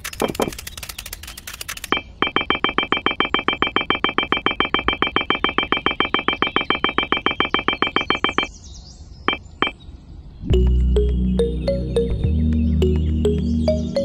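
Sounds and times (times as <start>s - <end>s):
single beeps: 1.9s - 8.5s, 9.3s - 9.8s.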